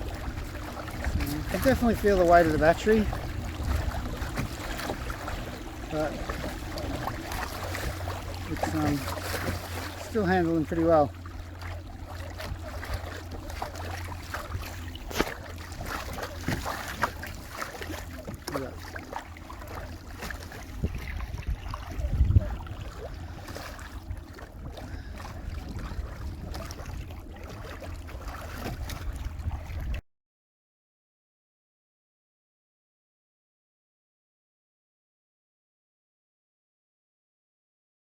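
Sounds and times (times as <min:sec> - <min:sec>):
trolling motor hum: 0:00.0 - 0:30.0
water lapping against hull: 0:00.0 - 0:30.0.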